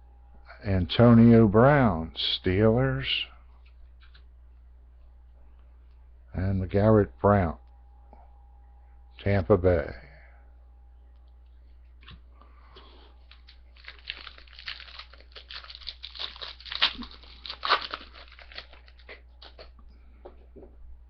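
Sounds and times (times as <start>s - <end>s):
foil wrapper crinkling: 12.8s - 19.7s.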